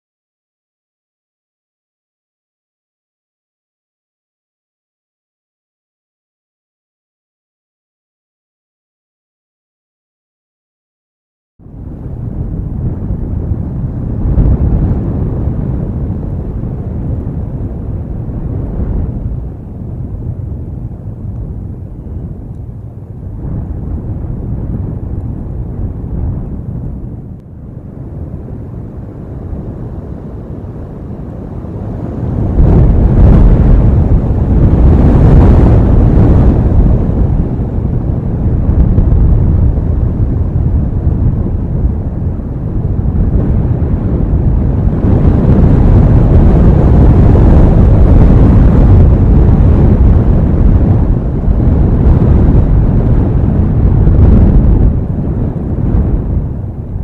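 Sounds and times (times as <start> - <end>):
wind blasting across microphone: 11.6 - 57.0.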